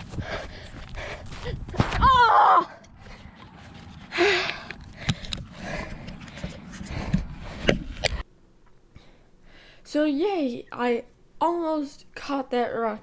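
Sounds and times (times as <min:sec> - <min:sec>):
running footsteps: 0:00.0 - 0:08.2.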